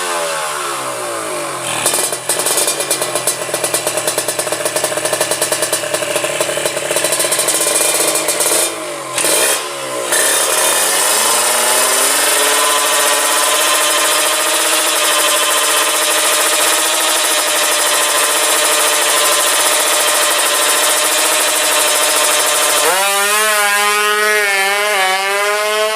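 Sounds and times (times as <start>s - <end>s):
motorcycle engine revving hard: 0.0s - 25.9s.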